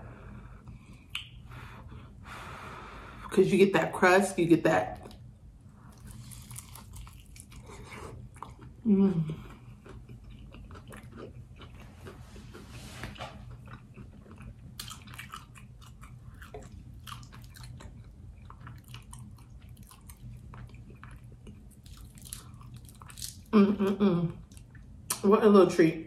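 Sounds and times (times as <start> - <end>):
wet chewing with crunches: 5.0 - 23.5.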